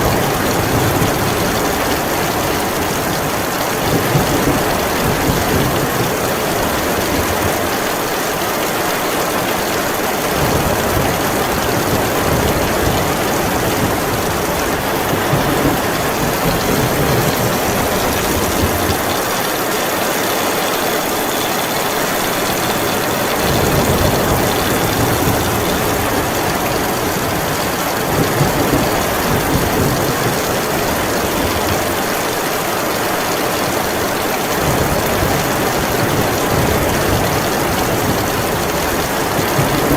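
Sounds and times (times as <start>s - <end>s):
heavy rain falling: 0.0s - 39.9s
thunder rumble: 10.3s - 31.8s.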